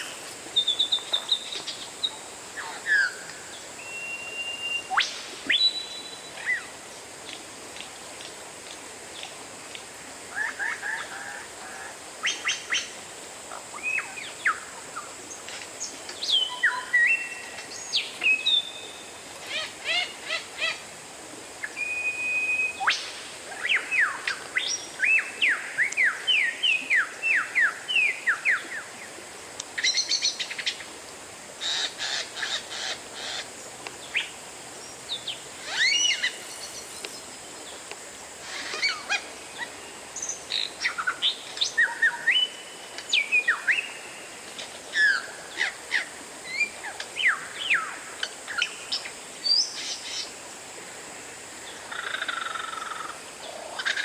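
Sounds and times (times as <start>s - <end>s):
songbird whistling song: 0.6s - 6.7s, 16.2s - 19.0s, 21.6s - 28.6s, 35.1s - 37.3s, 38.5s - 44.0s.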